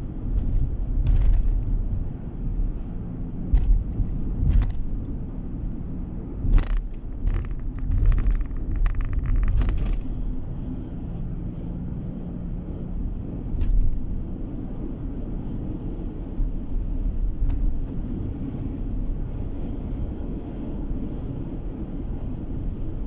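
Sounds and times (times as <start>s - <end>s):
car interior road rumble: 0.0s - 23.0s
sharp clicks and knocks: 0.3s - 2.0s, 3.5s - 10.3s, 16.4s - 18.9s.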